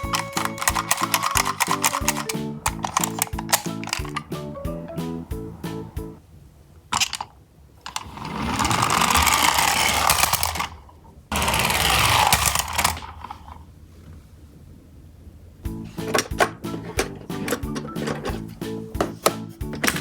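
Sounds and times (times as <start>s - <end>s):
toy trucks rattling down track: 0.0s - 4.3s, 7.0s - 13.6s.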